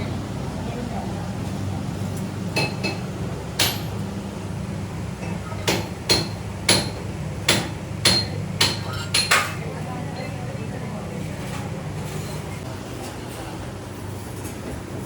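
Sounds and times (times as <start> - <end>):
hammer striking metal: 3.6 - 4.0, 5.6 - 9.5.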